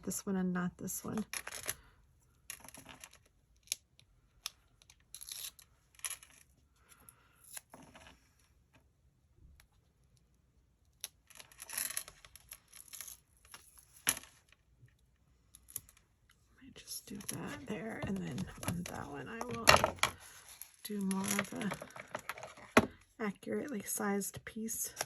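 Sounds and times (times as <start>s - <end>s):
adhesive tape being peeled: 5.1s - 5.6s.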